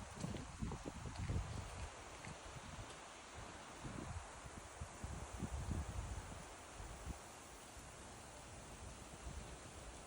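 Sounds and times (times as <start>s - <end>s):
wind buffeting microphone: 0.0s - 7.3s
faint hiss: 0.0s - 10.0s.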